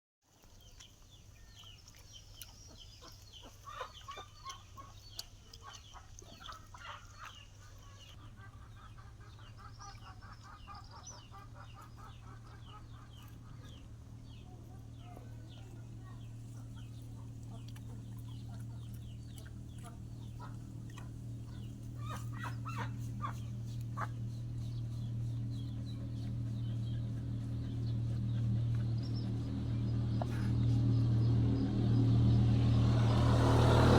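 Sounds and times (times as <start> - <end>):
steady low hum: 8.1 - 33.9
high bird-like calls: 19.0 - 24.1.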